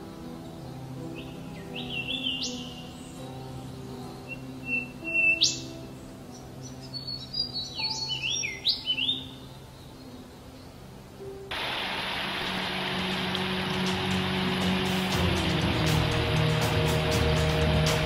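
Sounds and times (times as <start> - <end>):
songbirds chirping and whistling: 0.0 - 11.3
soft background music: 0.0 - 18.0.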